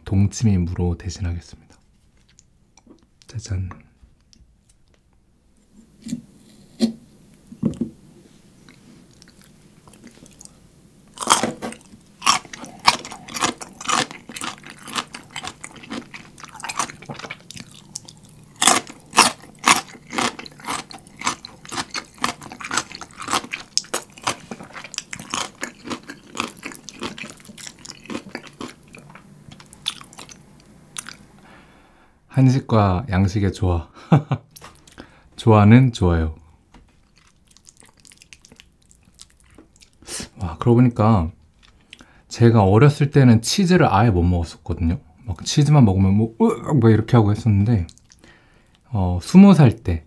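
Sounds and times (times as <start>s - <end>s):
crunchy chewing: 8.6s - 31.4s, 37.0s - 40.0s.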